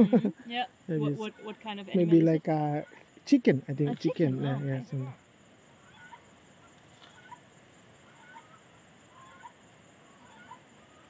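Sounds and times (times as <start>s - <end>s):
faint short bird calls: 5.8s - 11.0s.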